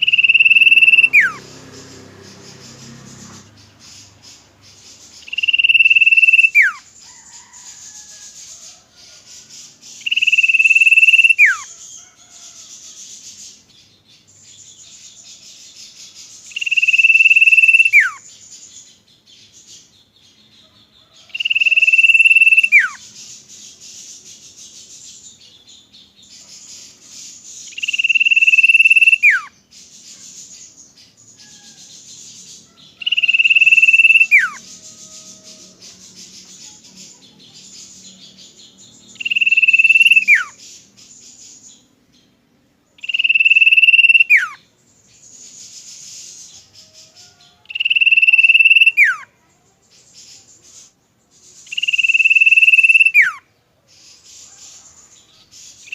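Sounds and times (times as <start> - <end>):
bird whistling: 0.0 - 1.4, 5.2 - 6.9, 10.0 - 11.7, 16.5 - 18.2, 21.4 - 23.0, 27.7 - 29.5, 33.0 - 35.4, 39.2 - 40.6, 43.0 - 44.6, 47.7 - 49.2, 51.7 - 53.4
high insect-like hiss: 0.0 - 13.7, 21.1 - 25.4, 26.2 - 41.8.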